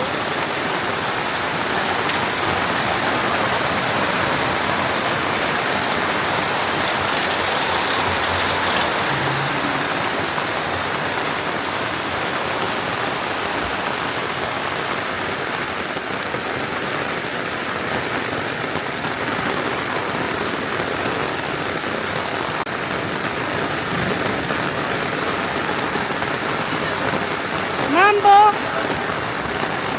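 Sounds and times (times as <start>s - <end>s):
heavy rain falling: 0.0s - 29.9s.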